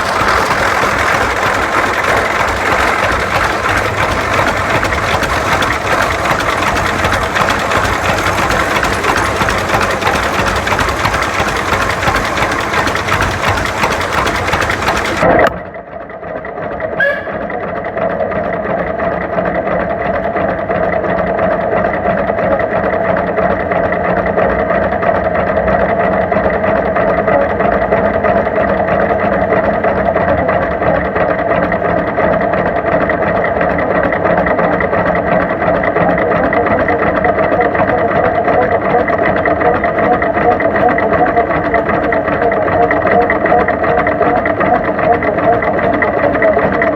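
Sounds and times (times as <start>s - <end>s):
tractor engines running: 0.0s - 15.5s, 26.8s - 46.9s.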